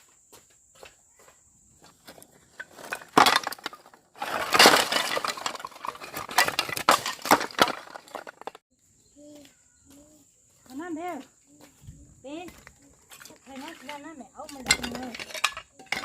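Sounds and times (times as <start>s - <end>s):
hard objects clattering: 2.1s - 8.6s, 13.1s - 16.0s.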